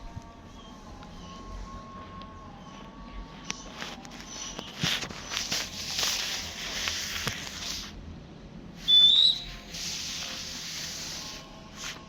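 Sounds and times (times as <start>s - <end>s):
owl hissing: 8.8s - 11.4s
short high whistle: 8.9s - 9.6s.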